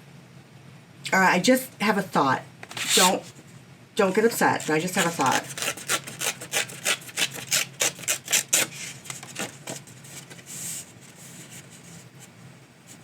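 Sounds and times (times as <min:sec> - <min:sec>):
cardstock tearing: 0:02.7 - 0:03.3, 0:04.2 - 0:10.5
soft paper rustle: 0:04.1 - 0:07.4, 0:08.6 - 0:13.0.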